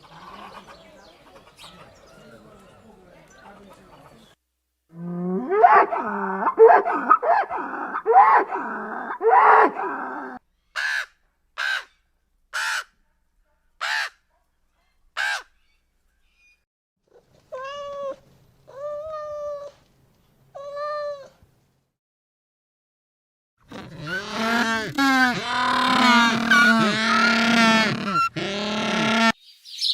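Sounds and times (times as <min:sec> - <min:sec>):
long steady animal calls: 0:23.7 - 0:29.4
overlapping animal calls: 0:23.7 - 0:29.4.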